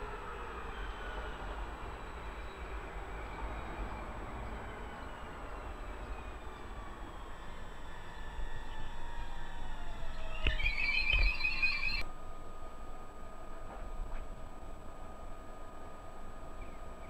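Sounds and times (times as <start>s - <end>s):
train wheels rumbling on rails: 0.0s - 12.0s
faint gliding whine: 0.0s - 17.0s.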